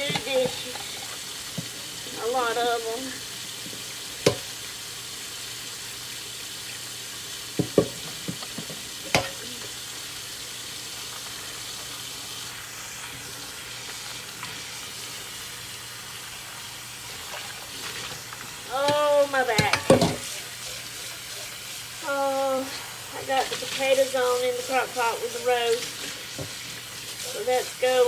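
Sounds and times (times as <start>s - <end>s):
tap running into sink: 0.0s - 2.7s, 3.5s - 4.7s, 7.6s - 9.8s, 17.2s - 21.1s, 25.7s - 27.2s
dishes clinking: 7.6s - 9.6s, 18.8s - 20.5s.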